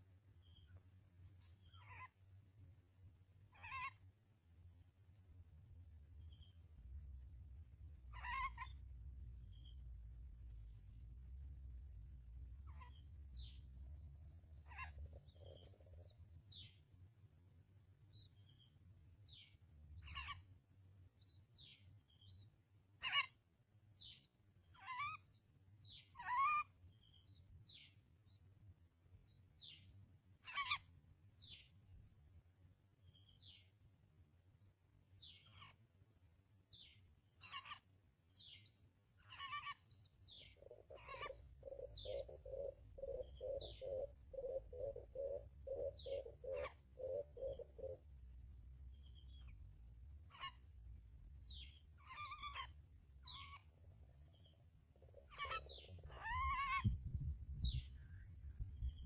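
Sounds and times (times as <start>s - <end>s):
sparrow chirps: 6.2s - 6.9s, 8.0s - 11.0s, 11.6s - 16.8s, 18.1s - 20.4s, 24.0s - 28.4s, 29.3s - 32.3s, 35.2s - 35.8s, 36.6s - 48.2s, 48.8s - 59.0s.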